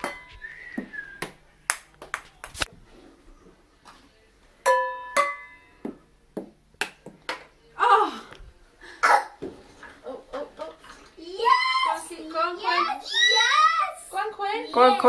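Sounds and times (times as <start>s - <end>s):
ball striking cups with ringing pings: 0.0s - 0.4s, 4.6s - 6.0s
ping pong ball bouncing down stairs: 4.6s - 7.5s.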